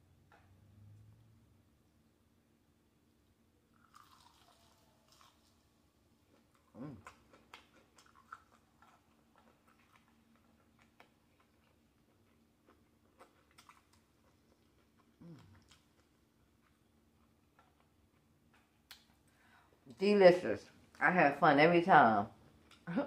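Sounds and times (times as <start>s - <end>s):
chewing fried food crunches: 3.8s - 19.3s.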